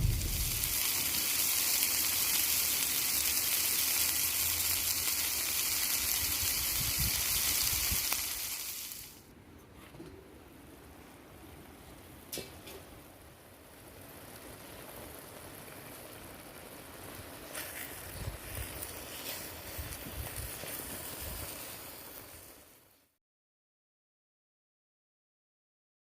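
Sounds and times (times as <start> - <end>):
low buffeting on microphone: 0.0 - 0.7
steady rushing noise: 0.0 - 0.8.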